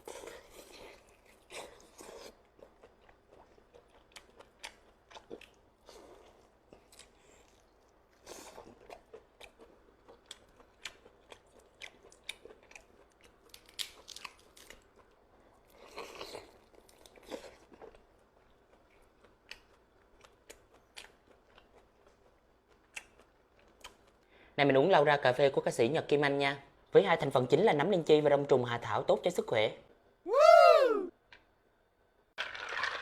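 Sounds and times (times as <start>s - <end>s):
person chewing and biting food: 0.0s - 18.0s.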